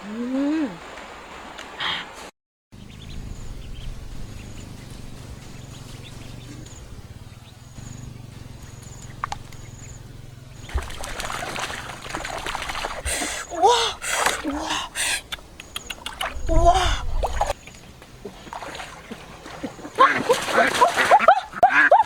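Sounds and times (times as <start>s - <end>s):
steady low hum: 2.8s - 20.0s
dense crackling or splashing: 10.6s - 14.5s.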